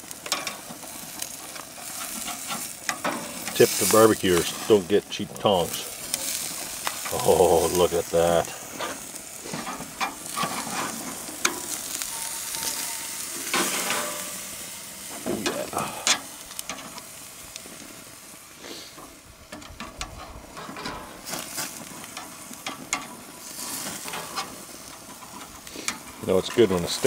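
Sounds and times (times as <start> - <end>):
steaks sizzling on a grill: 0.0 - 27.0
metal tongs clicking and scraping: 0.2 - 4.8, 9.5 - 14.5.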